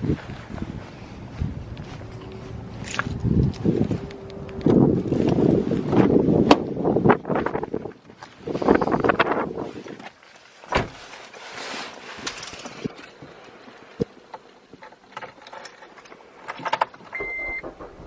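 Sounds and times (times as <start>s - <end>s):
car door shutting thump: 10.7s - 11.0s
knocks and rustling: 10.7s - 13.0s.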